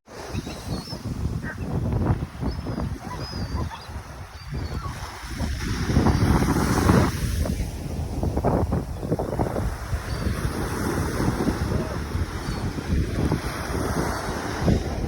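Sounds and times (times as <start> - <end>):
ocean surf breaking: 0.1 - 15.0
wind buffeting microphone: 0.1 - 15.0.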